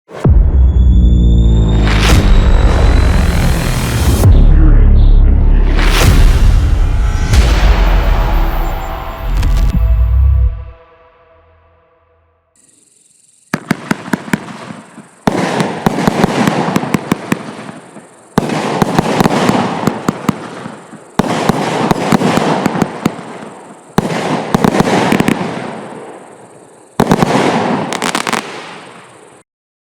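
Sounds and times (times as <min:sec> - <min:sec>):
firework volleys crackling: 0:13.5 - 0:25.7, 0:27.0 - 0:29.3.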